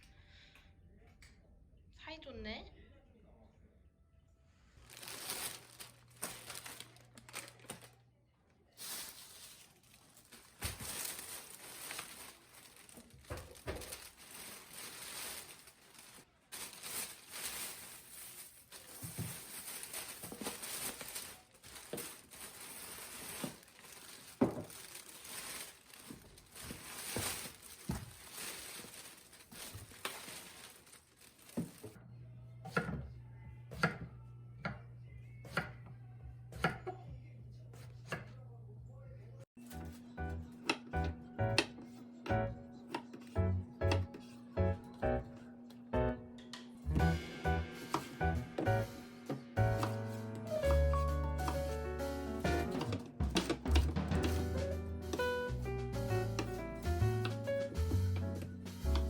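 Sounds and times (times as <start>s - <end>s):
rustling and crinkling: 4.8s - 8.0s, 8.7s - 32.0s, 46.4s - 59.0s.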